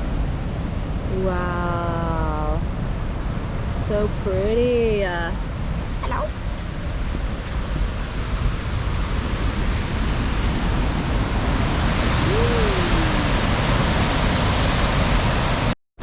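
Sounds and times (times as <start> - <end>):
waterfall rushing: 9.5 - 15.7.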